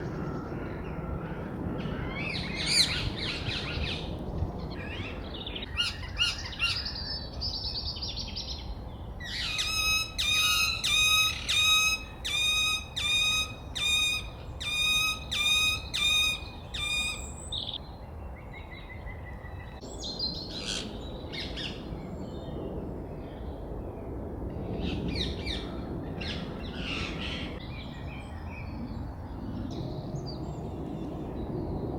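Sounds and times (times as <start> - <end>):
parrot chirping and squawking: 9.3 - 17.2.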